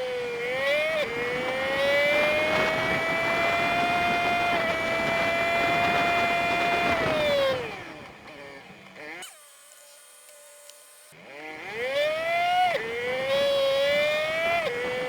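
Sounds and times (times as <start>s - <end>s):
road and wind noise: 0.0s - 9.2s, 11.2s - 15.0s
high motorcycle engine whine: 0.0s - 15.0s.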